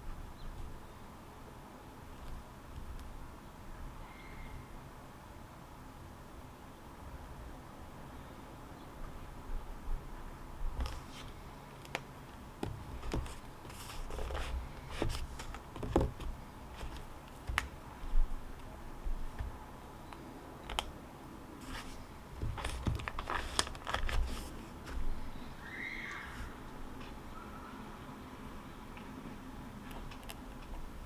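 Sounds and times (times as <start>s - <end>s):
low background hum: 0.0s - 31.0s
paper rustling: 10.8s - 17.7s, 21.6s - 25.3s.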